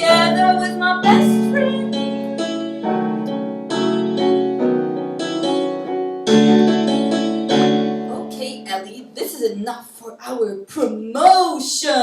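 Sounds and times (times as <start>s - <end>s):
electronic keyboard playing chords: 0.0s - 8.4s.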